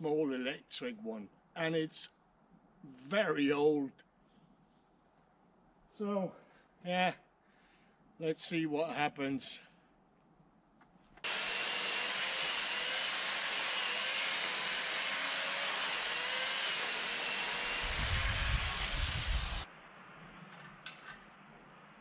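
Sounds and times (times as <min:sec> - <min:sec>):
electric chainsaw cutting wood: 0:11.2 - 0:19.7.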